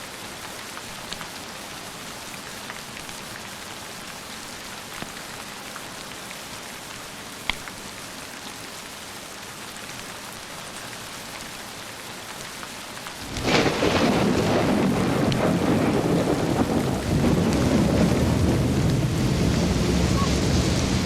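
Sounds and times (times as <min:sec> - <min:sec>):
steady rain falling: 0:00.0 - 0:21.0
thunderclap: 0:13.2 - 0:21.0.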